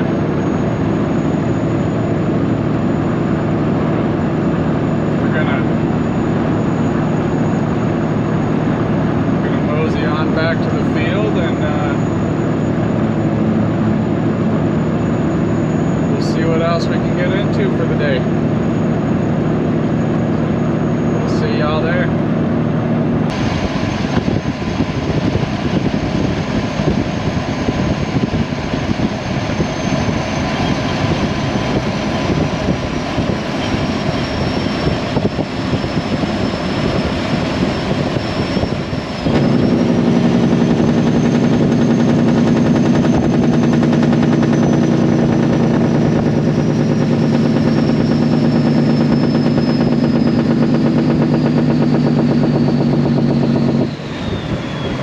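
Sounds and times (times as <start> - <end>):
thin high whine: 0.0 - 55.0
truck diesel engine crackling: 28.3 - 55.0.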